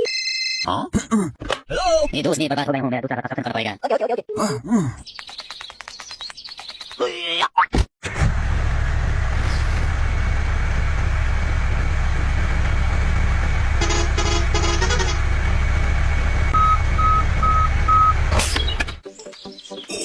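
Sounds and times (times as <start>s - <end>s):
truck engine running: 8.1s - 19.0s
horn toots: 13.8s - 15.4s
reversing beeps: 16.6s - 18.2s.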